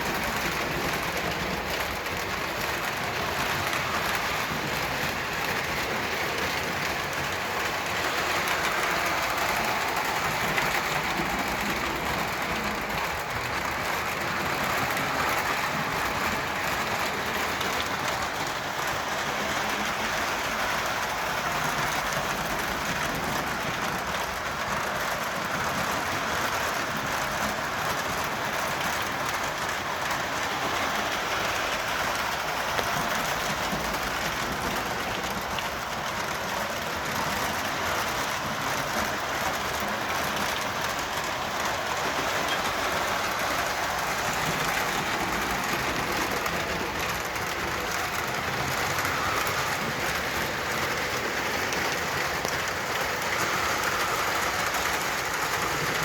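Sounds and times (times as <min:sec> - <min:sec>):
metal wheels rolling on rails: 0:00.0 - 0:56.0
model train motor whirring: 0:00.0 - 0:56.0.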